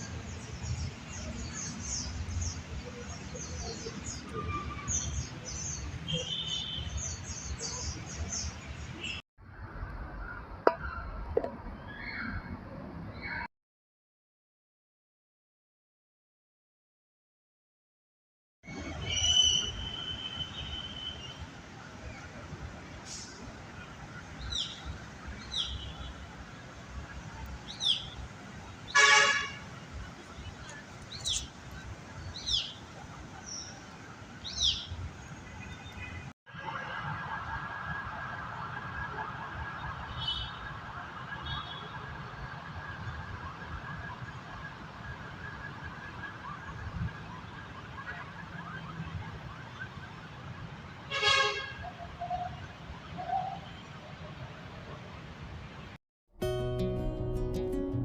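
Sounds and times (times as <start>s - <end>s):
small birds chirping: 27.1s - 29.0s, 30.0s - 36.2s.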